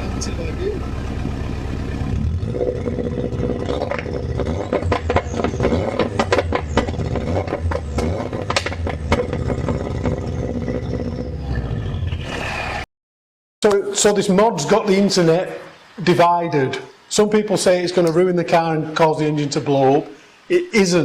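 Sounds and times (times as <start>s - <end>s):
car engine running: 0.0s - 12.8s
exhaust crackles: 0.0s - 12.9s.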